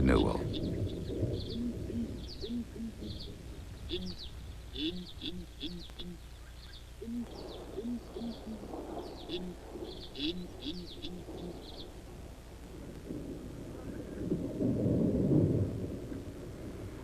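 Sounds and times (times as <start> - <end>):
distant thunder rumble: 0.0 - 6.2, 7.0 - 17.0
small birds chirping: 0.0 - 12.1
doves cooing: 0.0 - 14.7.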